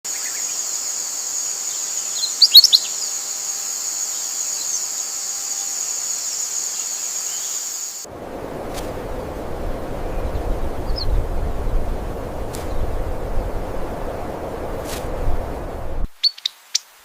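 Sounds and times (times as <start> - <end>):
high-pitched insect buzz: 0.1 - 8.0
bird chirps: 1.7 - 3.2, 10.1 - 11.8, 16.2 - 16.9
low rushing noise: 8.0 - 16.2.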